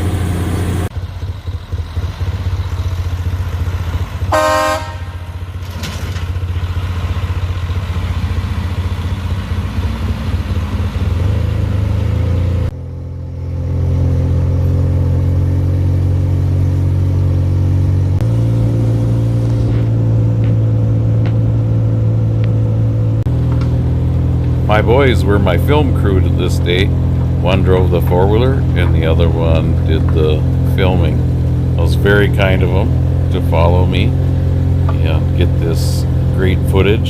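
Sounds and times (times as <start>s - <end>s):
dump truck engine running: 0.0s - 37.0s
truck horn toot: 4.3s - 5.7s.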